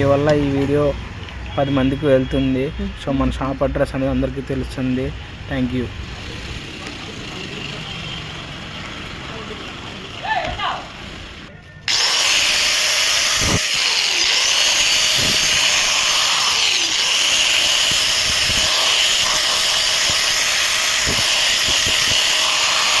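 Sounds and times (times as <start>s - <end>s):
power tool running: 10.8s - 23.0s.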